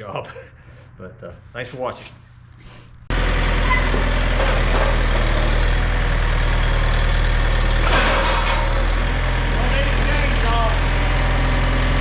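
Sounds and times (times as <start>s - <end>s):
large engine idling: 3.1s - 12.0s.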